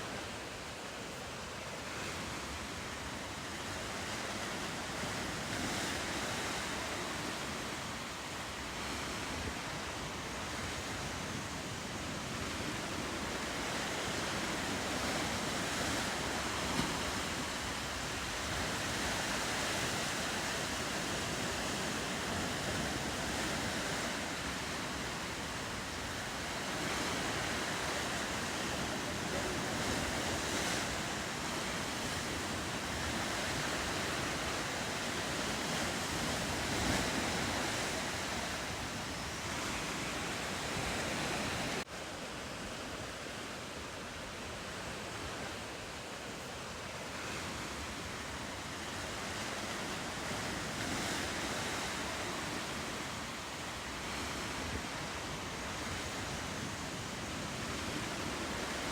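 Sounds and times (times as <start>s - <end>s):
ocean surf washing: 0.0s - 58.9s
wind on microphone: 1.9s - 41.9s.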